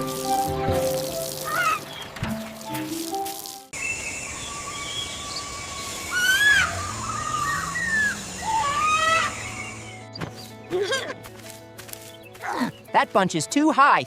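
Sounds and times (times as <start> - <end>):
gliding chirping whistling calls: 3.8 - 10.2.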